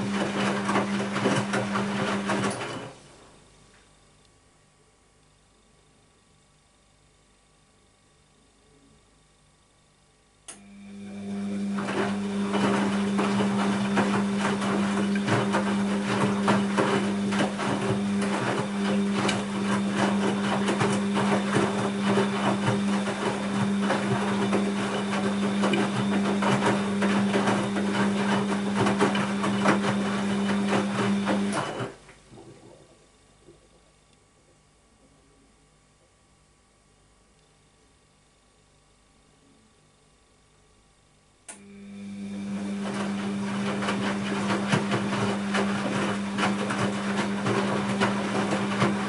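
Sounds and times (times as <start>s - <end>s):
washing machine motor hum: 0.0s - 3.6s, 10.4s - 35.5s, 41.4s - 49.0s.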